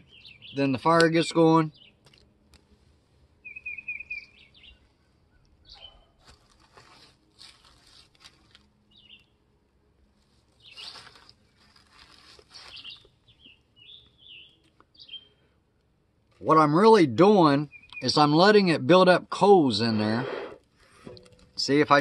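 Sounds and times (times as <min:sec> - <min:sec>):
bird chirping: 0:00.0 - 0:01.0, 0:01.6 - 0:02.2, 0:03.4 - 0:06.2, 0:08.8 - 0:09.5, 0:10.6 - 0:11.6, 0:12.6 - 0:15.5, 0:17.4 - 0:18.5.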